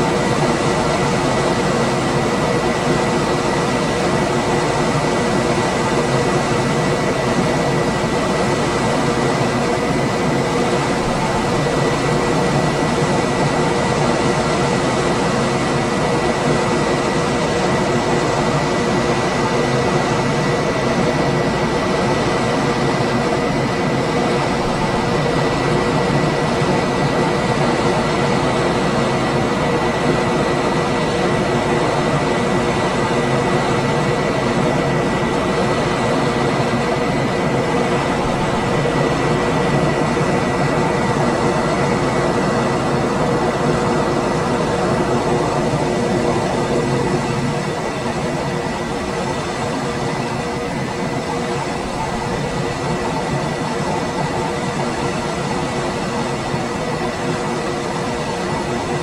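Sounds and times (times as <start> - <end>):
air conditioner fan rushing: 0.0 - 59.0.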